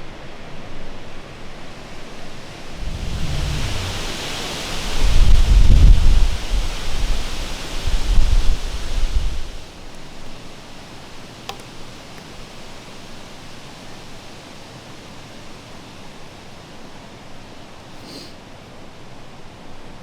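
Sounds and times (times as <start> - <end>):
wind through trees: 0.0 - 20.0
leaves rustling: 0.2 - 20.0
sharp tick: 11.5 - 12.4.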